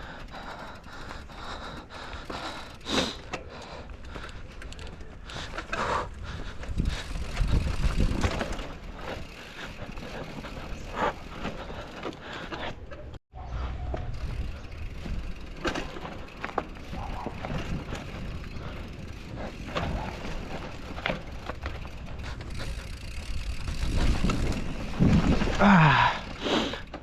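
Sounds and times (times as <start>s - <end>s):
bike tyres rumbling over dirt: 0.0s - 13.2s, 13.9s - 27.0s
bike knocks and rattles: 6.6s - 13.2s, 13.8s - 27.0s.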